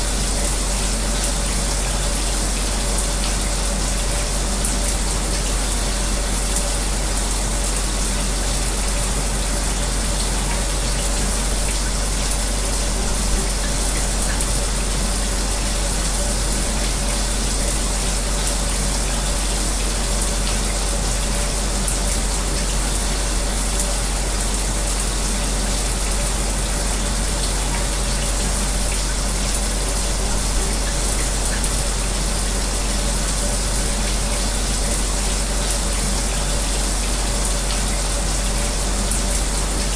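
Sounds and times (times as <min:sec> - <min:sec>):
fan humming: 0:00.0 - 0:39.9
shower water running: 0:00.0 - 0:39.9.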